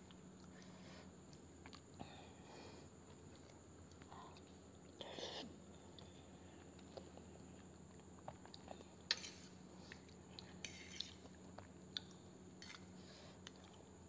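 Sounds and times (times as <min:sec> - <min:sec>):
person chewing: 0:01.2 - 0:02.0, 0:05.9 - 0:13.9.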